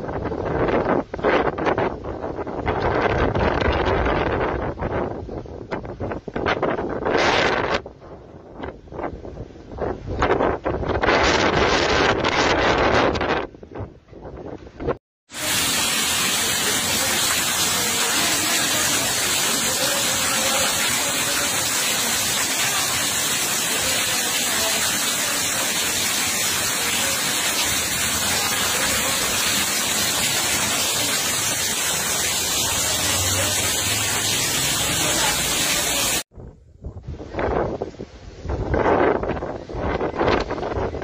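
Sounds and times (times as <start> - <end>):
heavy rain on wet concrete: 15.3 - 36.3.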